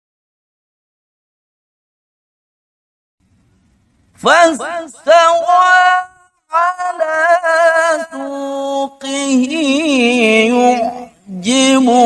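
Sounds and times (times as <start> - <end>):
man chanting melodically: 4.2 - 12.0.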